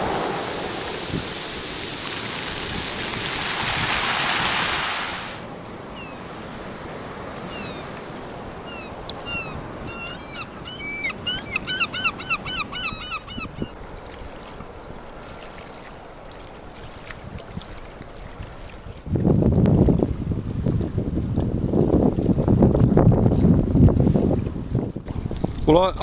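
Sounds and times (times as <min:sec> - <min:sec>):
water and wind washing: 0:00.0 - 0:26.0
birds calling: 0:07.4 - 0:07.9, 0:08.6 - 0:13.8.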